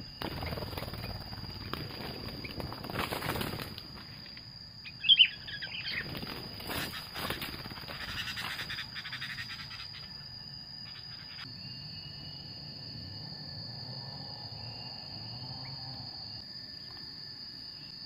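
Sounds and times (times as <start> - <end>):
high-pitched insect drone: 0.0 - 18.0
birds chirping: 4.8 - 11.5.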